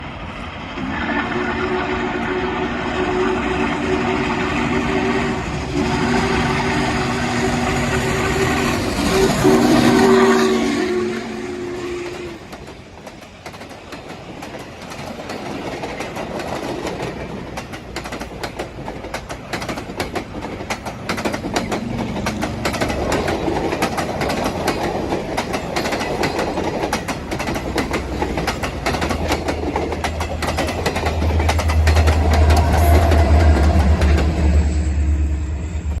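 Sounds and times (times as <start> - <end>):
train horn: 0.8 - 12.6, 31.8 - 36.0
train wheels clickety-clack: 2.2 - 35.0.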